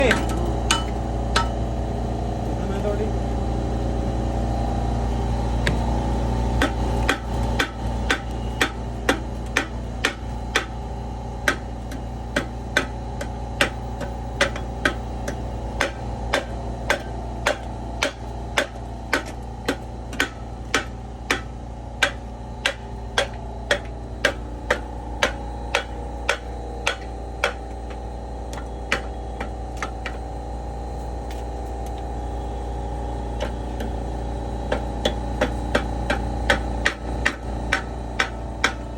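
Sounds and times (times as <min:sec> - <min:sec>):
low machine hum: 0:00.0 - 0:38.9
hammer striking metal: 0:00.1 - 0:01.6, 0:06.6 - 0:10.7, 0:11.5 - 0:30.2, 0:34.7 - 0:38.8.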